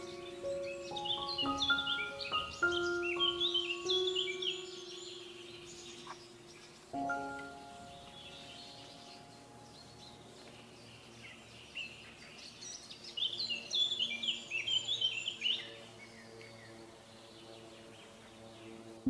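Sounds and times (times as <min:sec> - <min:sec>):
soft background music: 0:00.0 - 0:12.4
songbird twittering: 0:00.0 - 0:16.2.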